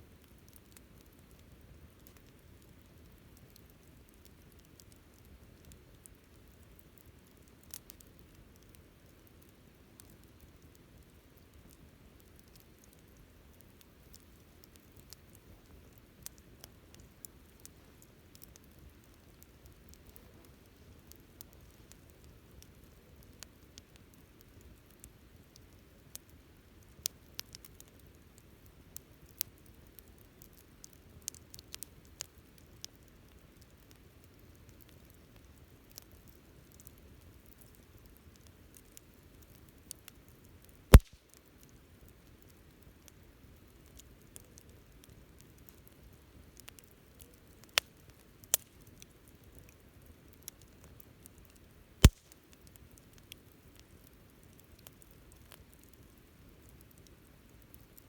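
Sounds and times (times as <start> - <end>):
campfire crackling: 0.0 - 58.0
low rumble of burning: 0.0 - 58.0
loud sharp pop: 41.0 - 41.2, 52.0 - 52.2.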